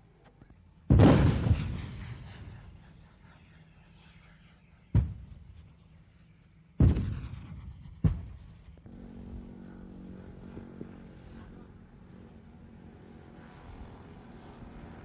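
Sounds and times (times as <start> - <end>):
engine humming: 1.9 - 15.0.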